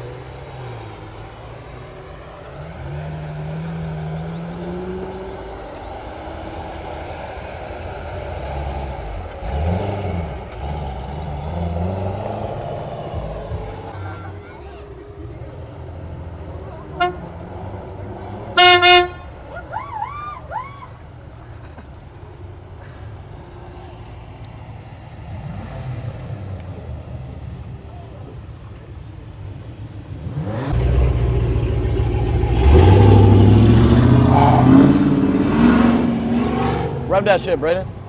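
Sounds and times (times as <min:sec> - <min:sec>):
car exhaust revving: 0:00.0 - 0:14.0, 0:15.2 - 0:19.5, 0:30.2 - 0:38.0
car engines idling: 0:00.0 - 0:38.0
car horn honks: 0:16.9 - 0:17.4, 0:18.5 - 0:19.5, 0:32.8 - 0:38.0.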